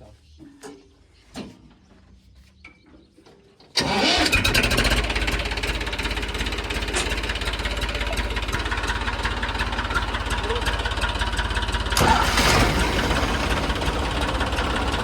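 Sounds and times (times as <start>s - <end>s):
diesel engine starting and idling: 3.8s - 15.0s.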